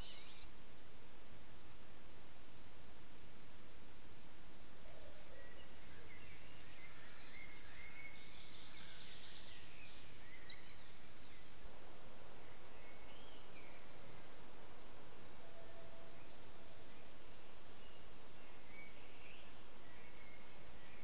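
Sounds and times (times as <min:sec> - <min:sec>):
small birds singing: 0:00.0 - 0:00.6, 0:04.8 - 0:21.0
background hiss: 0:00.0 - 0:21.0.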